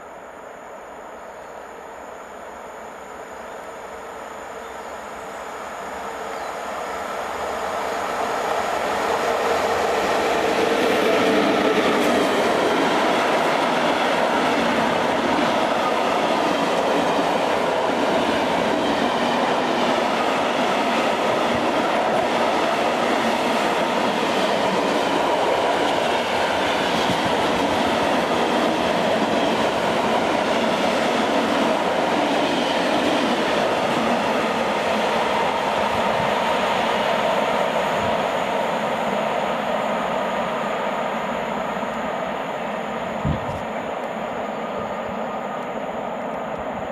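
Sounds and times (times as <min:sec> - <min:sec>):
freight train wheels on rails: 0:03.8 - 0:46.9.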